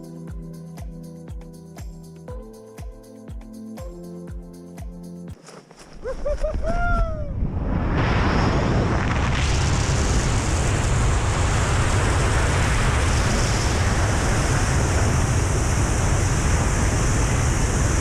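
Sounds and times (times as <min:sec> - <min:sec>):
rushing noise with low rumble: 0:06.5 - 0:18.0.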